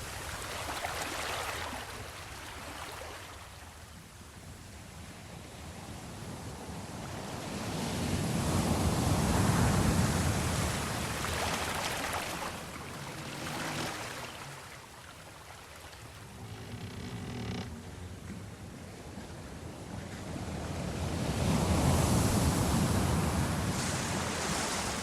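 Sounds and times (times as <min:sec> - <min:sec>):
sea waves surging: 0:06.9 - 0:25.0.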